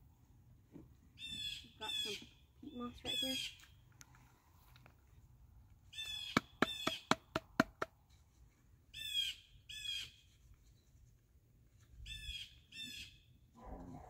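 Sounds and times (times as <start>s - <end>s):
bird calling: 5.9s - 7.4s.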